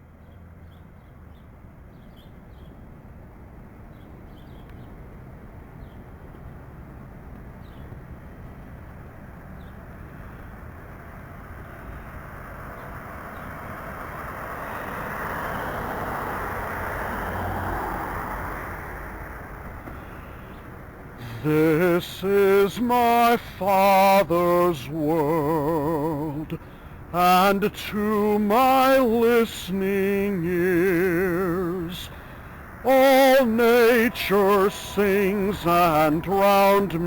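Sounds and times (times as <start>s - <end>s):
traffic noise: 0.0s - 37.0s
faint bird chirps: 0.2s - 2.8s, 3.9s - 5.0s
vehicle passing: 2.4s - 37.0s.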